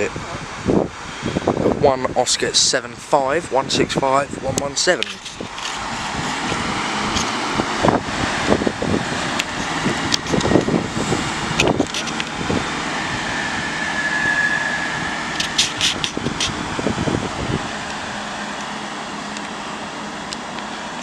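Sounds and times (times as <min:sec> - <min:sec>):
diesel train engine under load: 0:00.0 - 0:21.0
brief high tone: 0:13.3 - 0:15.4.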